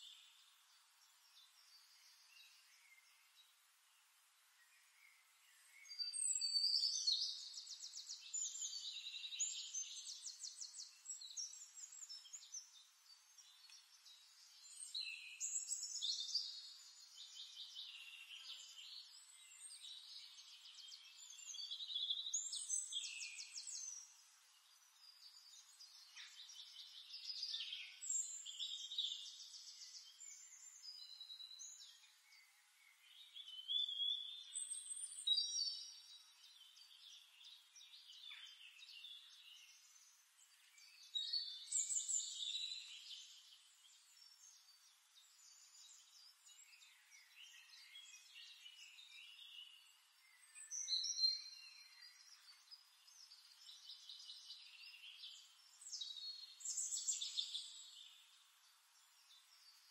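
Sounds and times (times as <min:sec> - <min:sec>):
songbird singing trills: 0:04.6 - 0:59.9.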